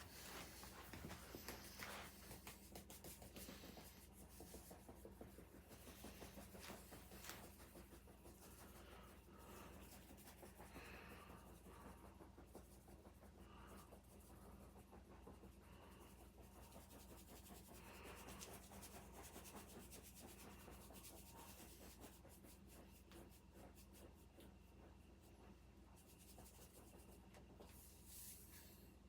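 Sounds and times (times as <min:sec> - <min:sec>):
faint scratching and rubbing: 0:00.0 - 0:28.8.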